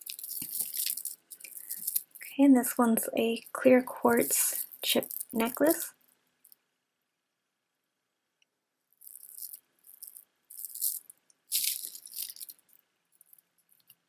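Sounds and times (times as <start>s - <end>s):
stone chips rattling: 0.0s - 2.3s, 4.2s - 6.0s, 9.0s - 13.9s.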